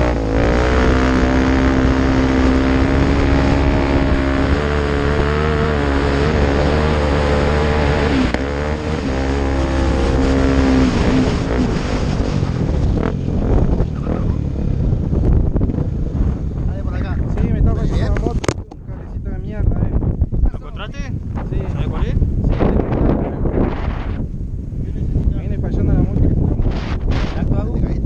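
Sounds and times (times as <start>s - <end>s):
motorcycle engine running: 0.0s - 18.8s.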